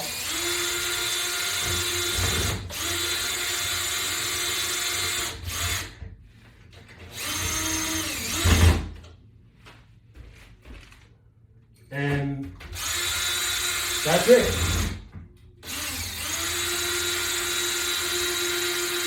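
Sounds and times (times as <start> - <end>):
cordless drill-driver running: 0.0 - 5.9, 7.1 - 8.6, 12.8 - 15.0, 15.6 - 19.0.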